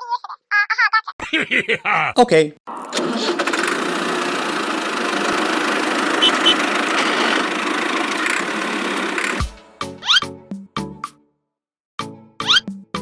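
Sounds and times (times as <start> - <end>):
small engine running: 2.7 - 9.6
short high chirps: 6.2 - 6.6.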